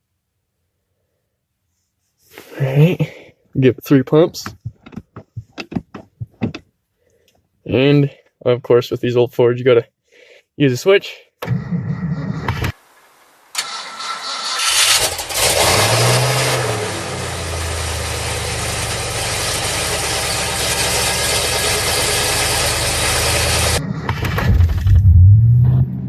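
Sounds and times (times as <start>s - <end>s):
engine cranking: 13.6s - 16.7s
engine revving and idling: 14.3s - 26.0s.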